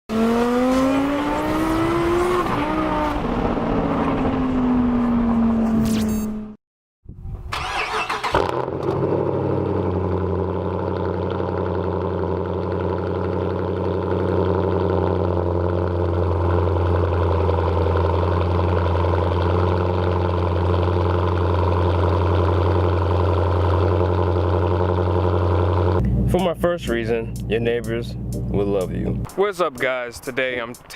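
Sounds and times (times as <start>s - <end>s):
car engine starting and idling: 7.3s - 30.9s.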